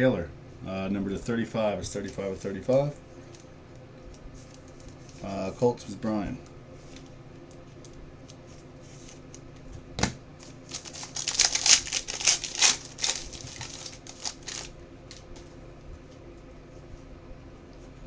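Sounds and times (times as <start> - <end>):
crinkly clicks and rustles: 3.2 - 5.3, 6.4 - 9.8, 10.4 - 16.6
card packaging snapping: 10.0 - 15.5.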